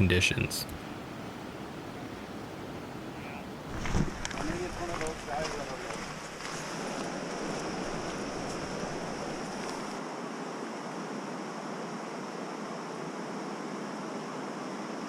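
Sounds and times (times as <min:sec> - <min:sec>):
water rushing: 0:00.0 - 0:10.0.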